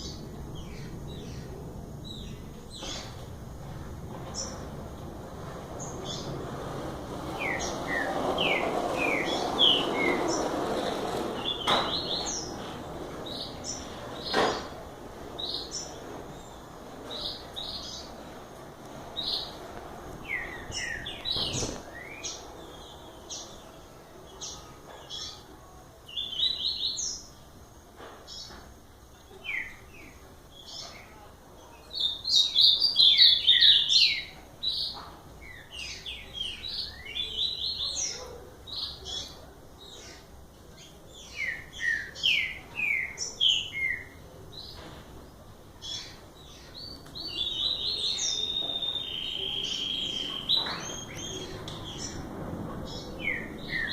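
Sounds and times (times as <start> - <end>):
songbirds chirping: 0.0 - 53.9.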